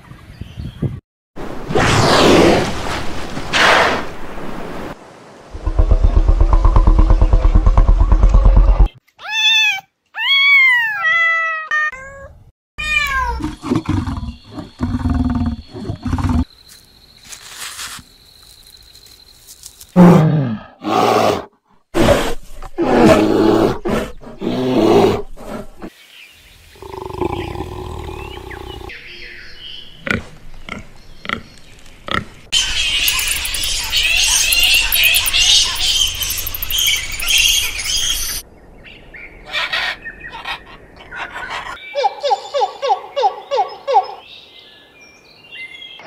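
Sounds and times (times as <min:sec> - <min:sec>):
animal growls and roars: 0:20.0 - 0:25.9, 0:26.8 - 0:28.9.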